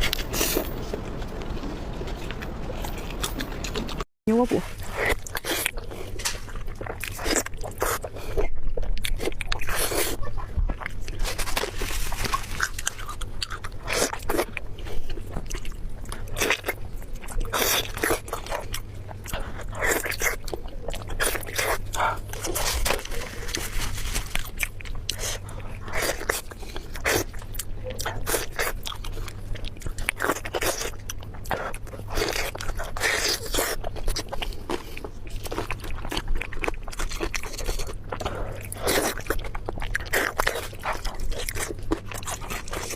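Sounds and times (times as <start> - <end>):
person chewing food: 0.0 - 4.1, 4.7 - 42.9.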